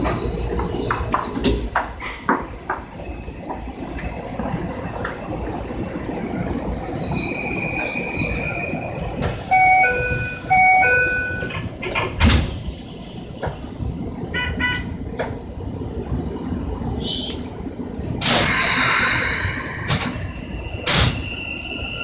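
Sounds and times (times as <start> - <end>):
train doors thumping shut: 9.2 - 12.8, 19.8 - 21.4
train door two-note chime: 9.5 - 11.6
hiss: 18.2 - 20.2.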